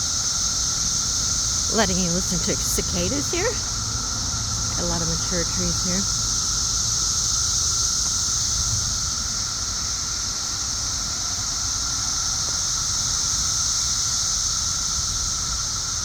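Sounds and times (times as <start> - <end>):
cicadas high-pitched drone: 0.0 - 16.0
lower steady tone: 1.6 - 6.3.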